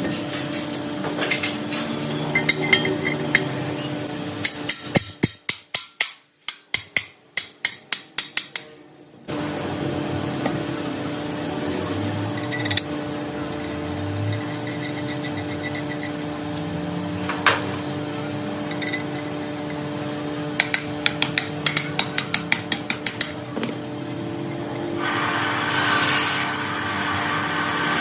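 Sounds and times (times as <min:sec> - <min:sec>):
steady machine hum: 0:00.0 - 0:05.7, 0:06.3 - 0:28.0
loud hiss: 0:25.0 - 0:28.0.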